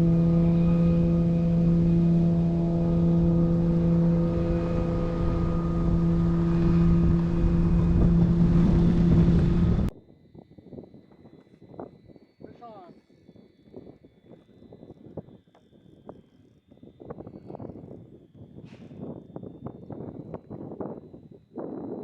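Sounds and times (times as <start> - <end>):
boat motor running: 0.0 - 9.9
wind noise: 0.0 - 22.0.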